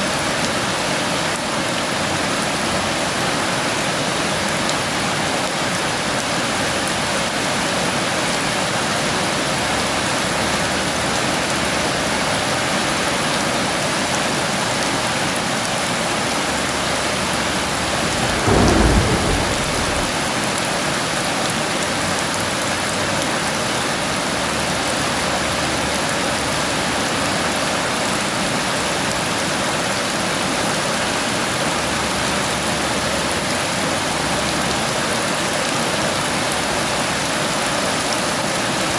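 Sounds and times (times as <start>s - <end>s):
thunderclap rumbling: 17.5s - 20.4s
heavy rain falling: 17.5s - 20.5s.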